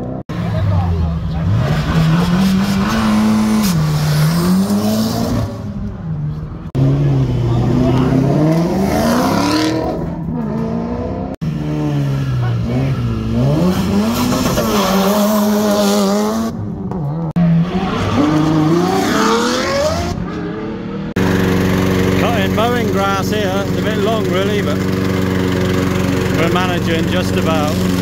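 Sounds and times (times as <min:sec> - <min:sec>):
car engines revving up: 0:00.0 - 0:28.0
lawn mower engine running: 0:21.2 - 0:28.0.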